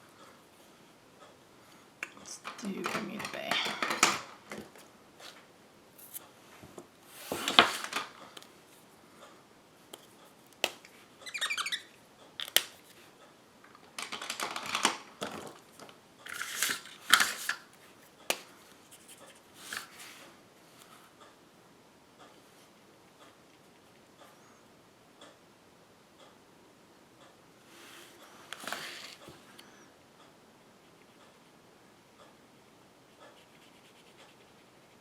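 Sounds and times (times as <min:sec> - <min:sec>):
paper rustling and scraping: 0:07.2 - 0:08.1, 0:28.0 - 0:29.2
brief squeak: 0:11.2 - 0:11.9.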